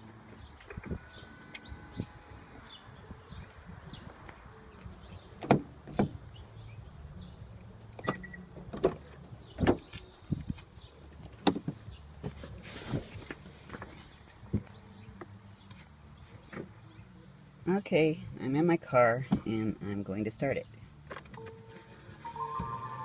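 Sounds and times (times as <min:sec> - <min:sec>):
car door clunks and knocks: 0:05.4 - 0:06.2, 0:09.6 - 0:09.9.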